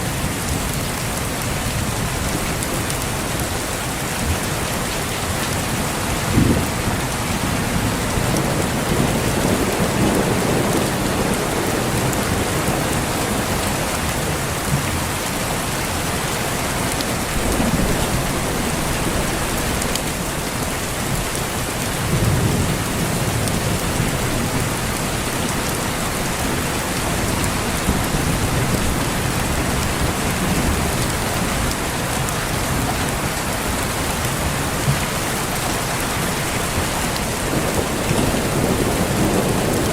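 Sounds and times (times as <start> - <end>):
heavy rain falling: 0.0 - 39.9
thunder rumbling: 6.1 - 14.0, 17.1 - 33.9, 36.2 - 39.9.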